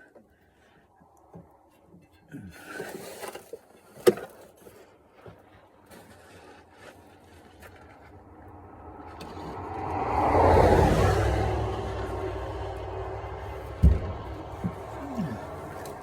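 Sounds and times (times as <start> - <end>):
rumbling rush of noise: 8.5 - 16.0
sharp knock: 13.8 - 14.8.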